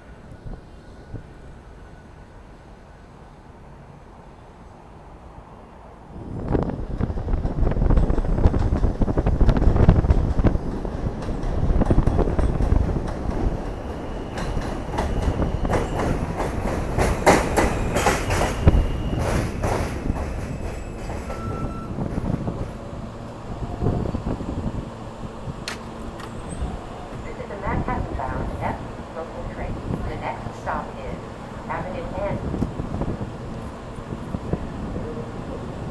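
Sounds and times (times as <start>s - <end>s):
subway train rumble: 0.0s - 35.9s
wheels clicking over rail joints: 25.6s - 27.4s.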